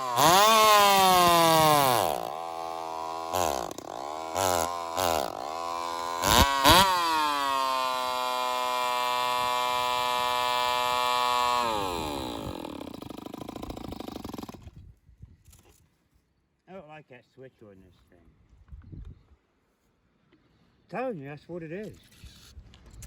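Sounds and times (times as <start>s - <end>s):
chainsaw revving: 0.0s - 14.8s.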